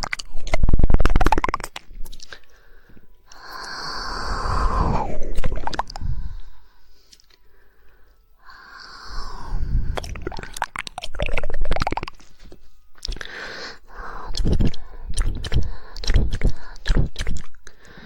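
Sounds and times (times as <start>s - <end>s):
rapid tongue clicks: 0.0s - 2.5s, 9.9s - 12.3s, 13.0s - 13.4s, 14.0s - 18.0s
wet hissy mouth noise: 3.3s - 6.5s, 8.5s - 12.2s, 14.0s - 17.7s.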